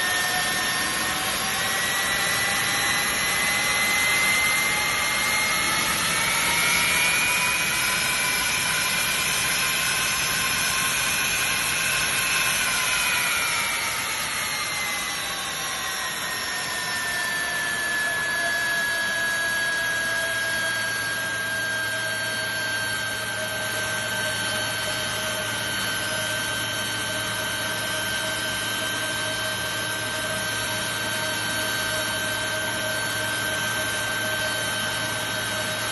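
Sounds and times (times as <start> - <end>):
jet engine roar with high whine: 0.0 - 35.9.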